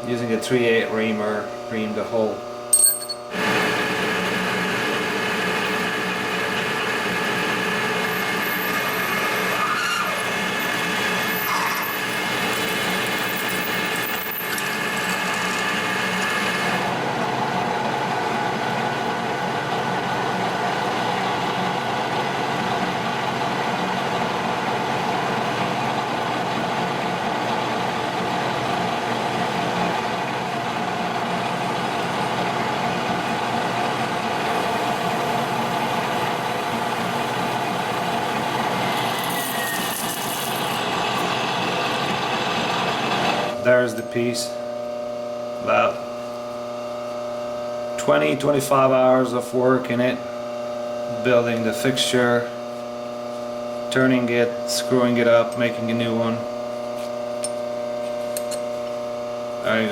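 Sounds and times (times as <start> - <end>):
metal lathe running: 2.7 - 59.9
drill boring into metal: 2.8 - 16.9, 38.7 - 44.2.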